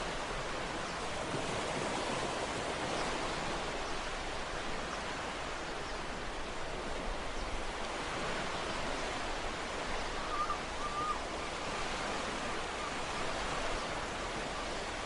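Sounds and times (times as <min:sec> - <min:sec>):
ocean waves breaking on shore: 0:00.0 - 0:15.0.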